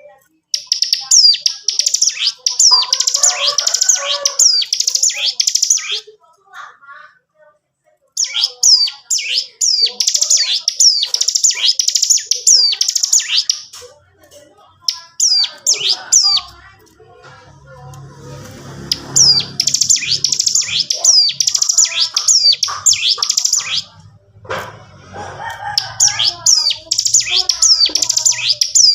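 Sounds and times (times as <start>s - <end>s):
bird singing chattering bursts: 0.5s - 6.1s, 8.2s - 13.8s, 14.8s - 16.6s, 18.8s - 24.0s, 25.7s - 28.9s.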